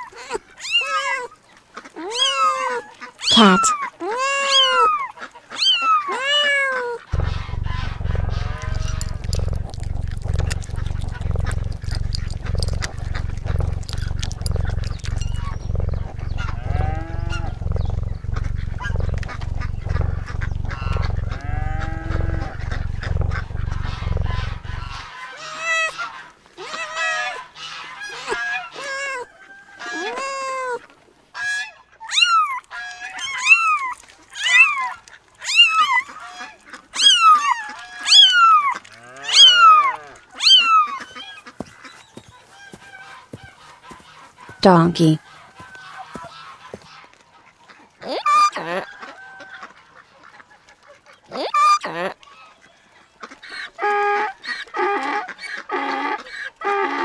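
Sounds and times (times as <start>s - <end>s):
cat meowing: 2.0s - 4.9s
cat purring: 3.3s - 3.7s, 7.1s - 25.1s.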